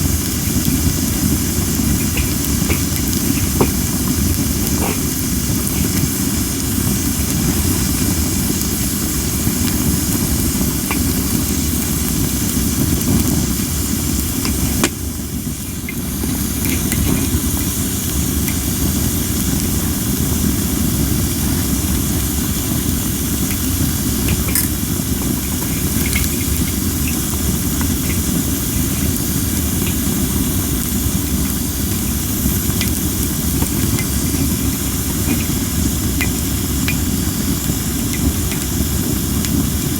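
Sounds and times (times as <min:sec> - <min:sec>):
campfire hissing and crackling: 0:00.0 - 0:39.9
insects chirping: 0:21.4 - 0:39.8.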